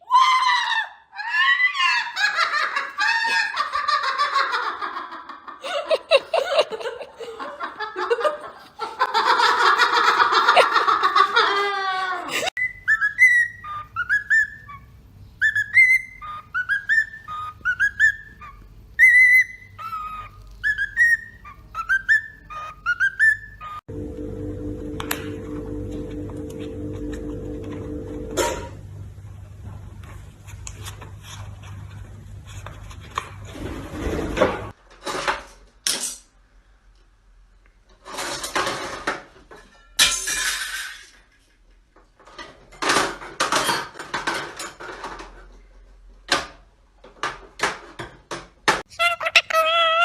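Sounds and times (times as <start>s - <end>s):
parrots screeching and squawking: 0.1s - 2.4s, 12.6s - 23.8s, 48.9s - 50.0s
parrot whistled notes: 12.6s - 23.8s.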